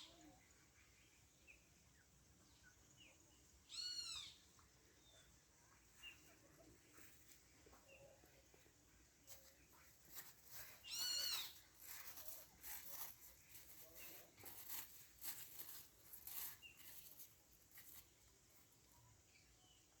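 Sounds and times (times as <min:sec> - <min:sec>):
soft scuffing or rustling: 0:09.3 - 0:18.1
faint high chirps: 0:10.5 - 0:12.4.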